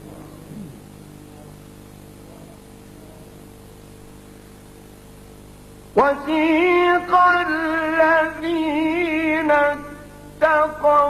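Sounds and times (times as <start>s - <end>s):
electrical hum and hiss: 0.0s - 11.0s
man reciting melodically: 6.0s - 11.0s.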